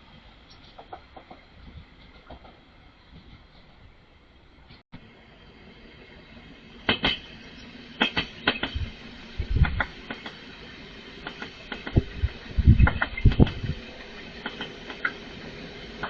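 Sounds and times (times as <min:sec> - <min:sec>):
low train rumble: 0:00.0 - 0:16.0
train wheels clacking over track joints: 0:00.6 - 0:03.7, 0:06.8 - 0:16.0.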